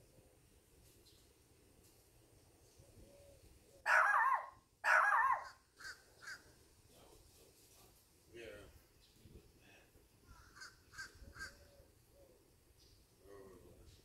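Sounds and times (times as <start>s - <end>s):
bird calling: 2.7s - 6.5s, 10.2s - 13.0s.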